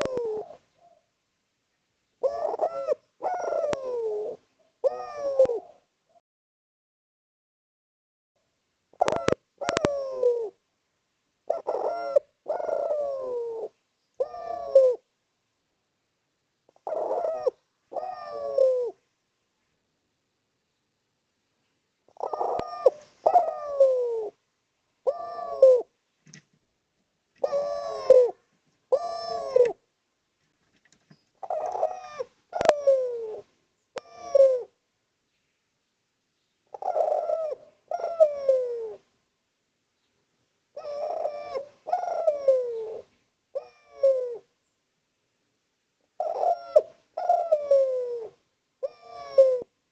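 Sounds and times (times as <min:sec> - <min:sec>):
dove cooing: 0:00.0 - 0:01.1, 0:02.2 - 0:06.2, 0:08.9 - 0:10.6, 0:11.4 - 0:15.1, 0:16.7 - 0:19.0, 0:22.1 - 0:24.4, 0:25.0 - 0:26.0, 0:27.4 - 0:29.8, 0:31.4 - 0:34.8, 0:36.7 - 0:39.1, 0:40.7 - 0:44.5, 0:46.1 - 0:49.8.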